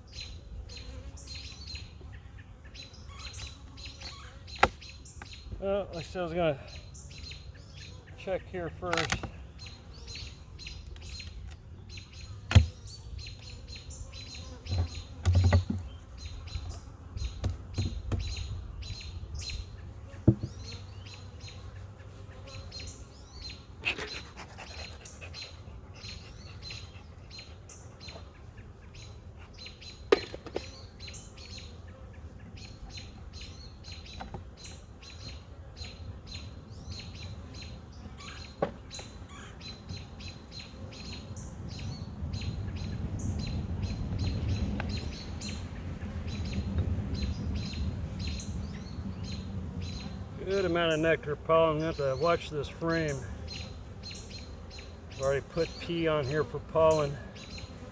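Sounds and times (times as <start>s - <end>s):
small birds chirping: 0.0s - 57.9s.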